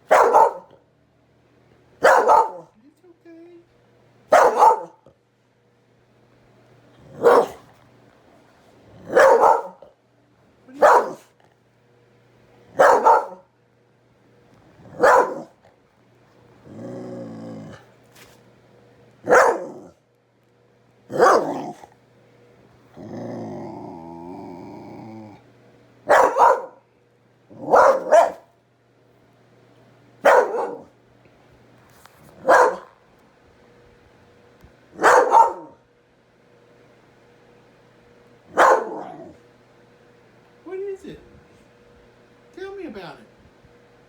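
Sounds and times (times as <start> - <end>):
dog barking: 0.0 - 0.8, 2.0 - 2.8, 4.3 - 5.1, 7.1 - 7.7, 9.0 - 9.9, 10.7 - 11.4, 12.7 - 13.5, 14.9 - 15.6, 19.2 - 20.0, 21.1 - 21.8, 26.1 - 26.9, 27.5 - 28.5, 30.2 - 30.9, 32.4 - 33.0, 35.0 - 35.8, 38.5 - 39.4
dog growling: 6.9 - 7.6, 8.9 - 9.8, 14.7 - 15.6, 16.6 - 18.0, 19.3 - 20.0, 21.1 - 22.0, 22.9 - 25.5, 27.5 - 28.3, 38.5 - 39.5.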